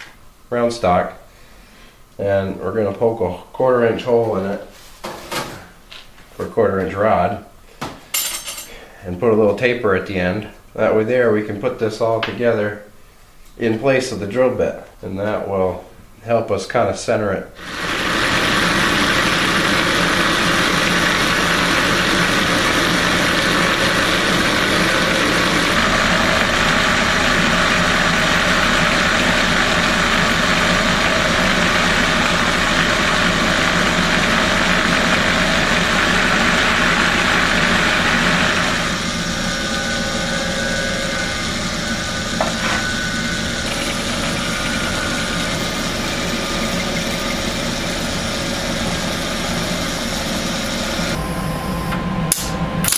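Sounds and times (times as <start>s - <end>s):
power drill cutting steel: 17.6s - 51.2s
sharp click: 52.3s - 52.9s.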